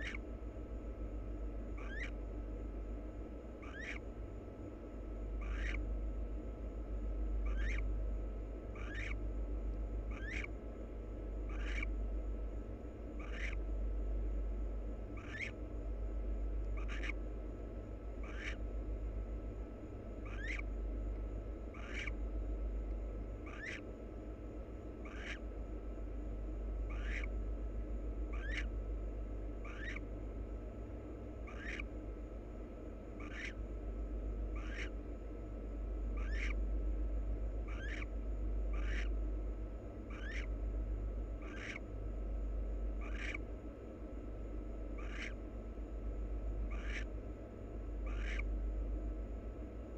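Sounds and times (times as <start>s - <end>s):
barn owl calling: 0.0s - 13.8s, 14.7s - 15.8s, 16.6s - 36.8s, 37.4s - 42.1s, 42.9s - 48.7s
low electrical hum: 0.0s - 49.9s.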